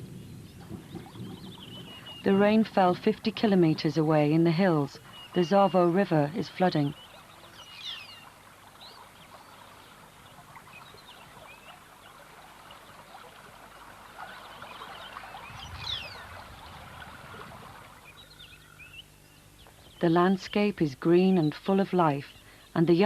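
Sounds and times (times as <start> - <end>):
river water rushing: 5.0 - 18.6.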